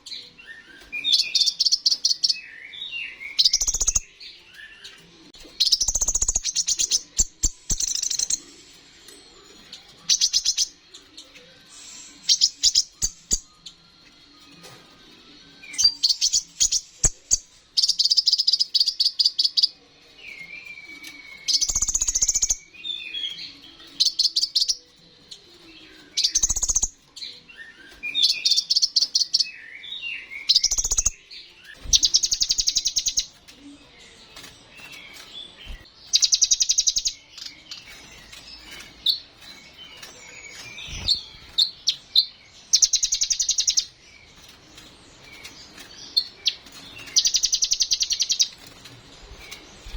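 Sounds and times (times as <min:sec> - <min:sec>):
bird twittering chirps: 0:00.0 - 0:04.9, 0:05.6 - 0:08.5, 0:20.8 - 0:24.9, 0:26.1 - 0:33.4, 0:34.8 - 0:44.3, 0:45.3 - 0:49.9.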